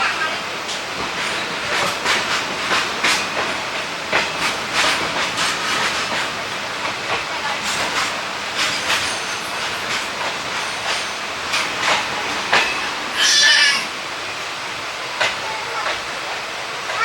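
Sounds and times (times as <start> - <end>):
train coach rolling rumble: 0.0 - 17.0
wheels clacking over rails: 0.4 - 17.0.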